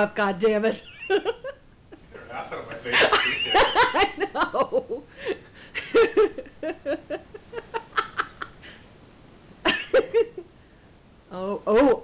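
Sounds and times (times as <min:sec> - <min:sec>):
people laughing: 0:01.0 - 0:05.0.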